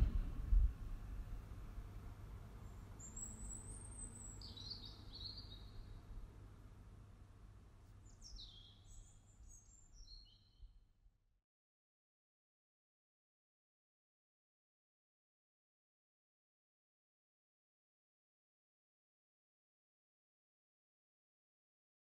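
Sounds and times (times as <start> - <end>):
low steady rumble: 0.0 - 2.6.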